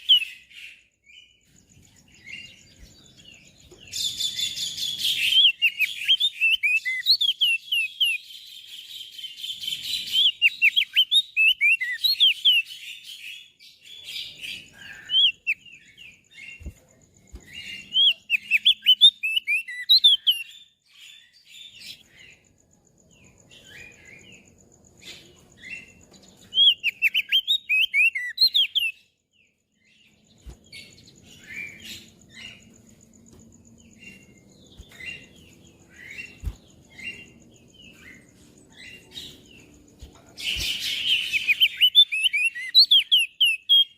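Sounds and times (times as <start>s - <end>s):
bird chirping high phrases: 0.0s - 8.4s, 14.3s - 22.1s, 25.3s - 29.2s, 33.8s - 43.9s.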